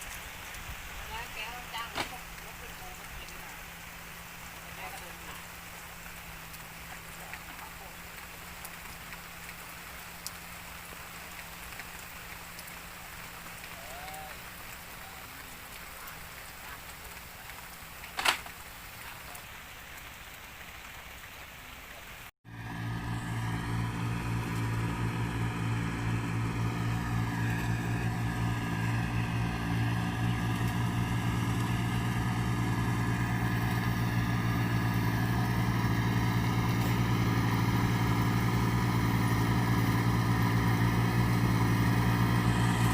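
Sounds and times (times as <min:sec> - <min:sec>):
tractor engine running: 0:22.4 - 0:42.9.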